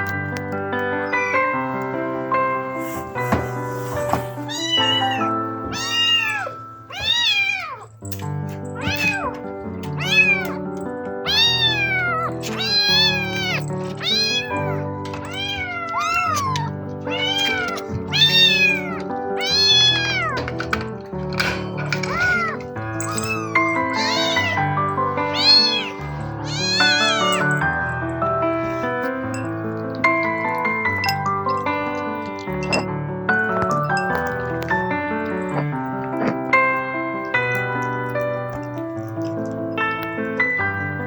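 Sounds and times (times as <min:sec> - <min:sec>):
background music: 0:00.0 - 0:41.0
kitten meowing: 0:01.0 - 0:01.6, 0:04.4 - 0:08.0, 0:08.8 - 0:10.6, 0:11.2 - 0:20.5, 0:22.0 - 0:28.0.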